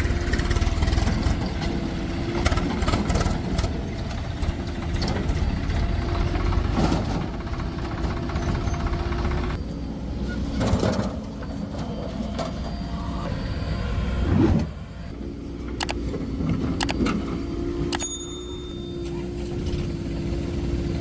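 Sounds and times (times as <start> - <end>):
diesel engine running: 0.0 - 21.0
sharp clicks: 15.8 - 16.0, 16.8 - 17.2.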